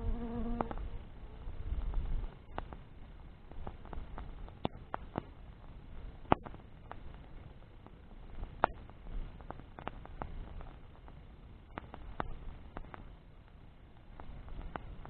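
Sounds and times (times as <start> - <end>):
faint low rumble: 0.0 - 15.0
wood fire crackling: 0.6 - 15.0.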